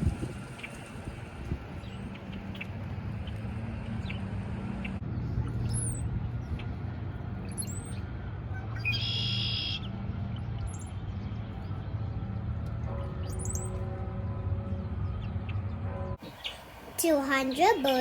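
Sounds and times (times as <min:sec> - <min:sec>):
birds chirping: 0:00.0 - 0:11.8, 0:14.7 - 0:18.0.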